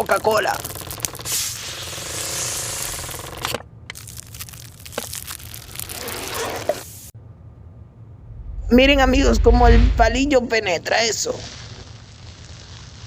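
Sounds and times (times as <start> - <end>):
fizzing carbonation bubbles: 0.1 - 3.2
hiss of can opening: 1.2 - 3.2.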